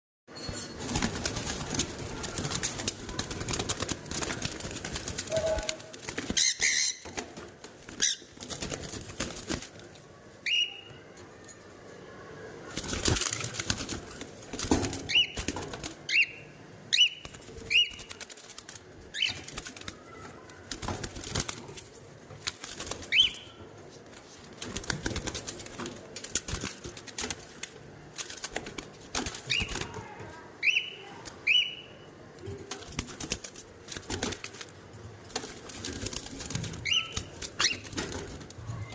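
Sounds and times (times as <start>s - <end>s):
parrot chirping: 6.3s - 7.2s, 23.1s - 23.6s, 36.8s - 37.9s.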